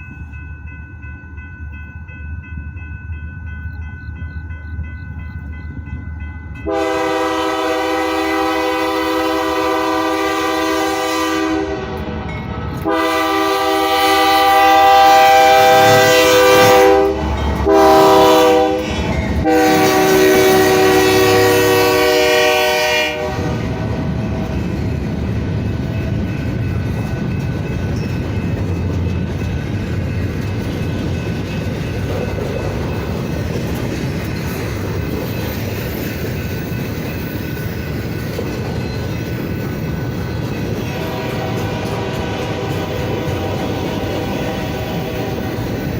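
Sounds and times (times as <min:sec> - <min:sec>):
train wheels rumbling past: 0:00.0 - 0:45.9
locomotive air horn: 0:06.6 - 0:12.1, 0:12.8 - 0:24.0, 0:40.9 - 0:45.8.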